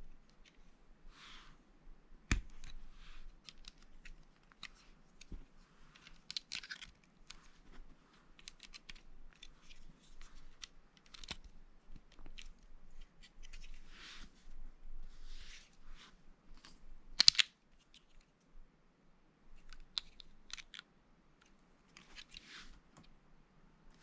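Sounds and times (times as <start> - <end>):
plastic pieces clicking together: 6.0 - 7.4, 17.2 - 18.1, 19.6 - 20.8.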